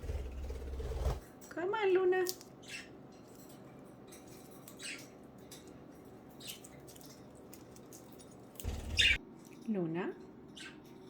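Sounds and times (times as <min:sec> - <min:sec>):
budgerigars chirping: 0:08.7 - 0:09.2.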